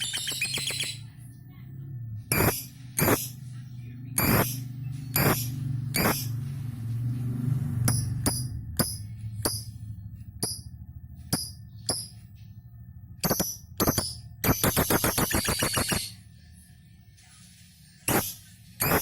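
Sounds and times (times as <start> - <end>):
lovebird rapid chattering: 0.0 - 1.0, 2.3 - 3.4, 4.2 - 6.4, 13.2 - 16.2
lovebird high chirps: 0.0 - 1.1, 4.2 - 6.4, 13.2 - 16.2.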